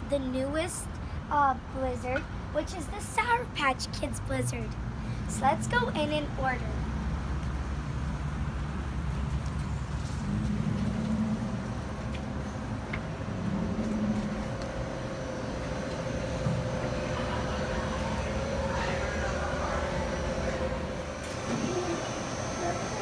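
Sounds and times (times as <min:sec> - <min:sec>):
vehicle interior rumble: 0:04.4 - 0:22.6
steady hum: 0:11.2 - 0:23.0.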